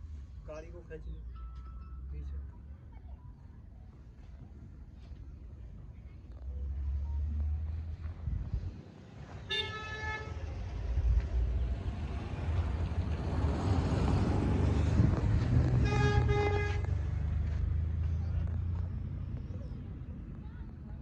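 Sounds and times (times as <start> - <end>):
vehicle horn blasts: 9.4 - 10.5, 15.8 - 17.0.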